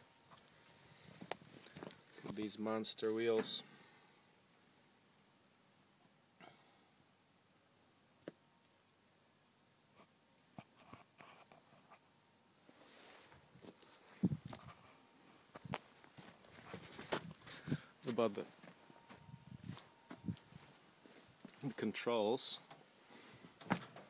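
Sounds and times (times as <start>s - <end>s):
insect chirping: 0.0s - 24.0s
footsteps: 0.3s - 2.4s, 12.7s - 21.8s.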